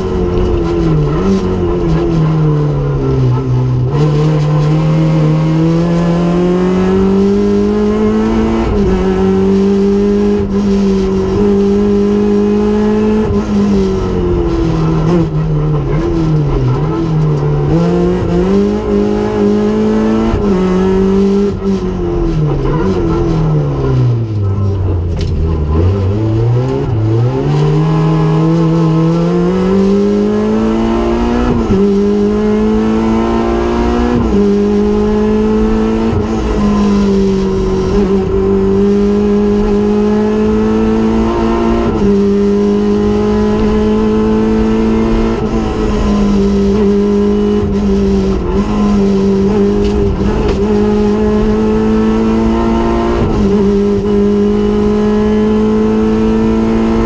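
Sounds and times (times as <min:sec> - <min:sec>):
rally car engine accelerating: 0:00.0 - 0:57.0.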